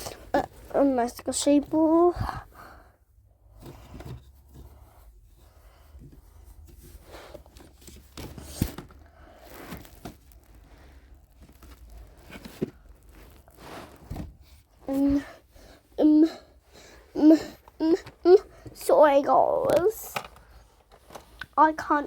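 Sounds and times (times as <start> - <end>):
objects rustling and crinkling: 0.0 - 22.0.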